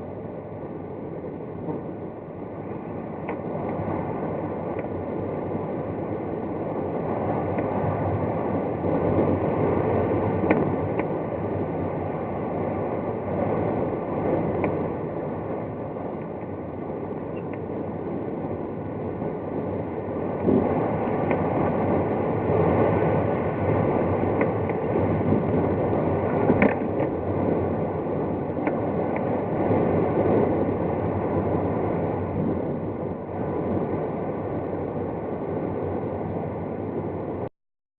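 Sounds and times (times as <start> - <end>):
air rushing over cockpit: 0.0 - 37.5
small clicks and knocks: 26.5 - 27.1.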